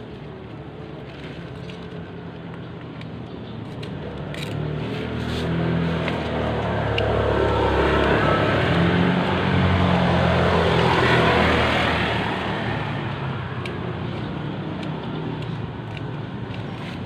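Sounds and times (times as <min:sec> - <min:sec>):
road noise: 0:00.0 - 0:17.0
motor vehicle passing: 0:03.5 - 0:17.0.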